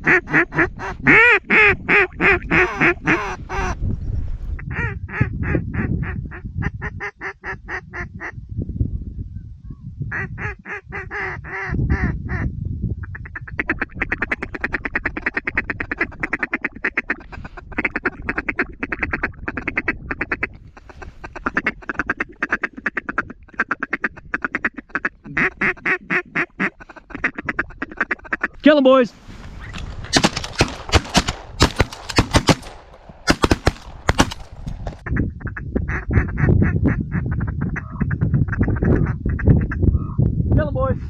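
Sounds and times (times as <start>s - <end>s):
duck calls quacking: 0.0s - 3.8s, 13.2s - 28.6s
wind rumble on microphone: 0.0s - 41.0s.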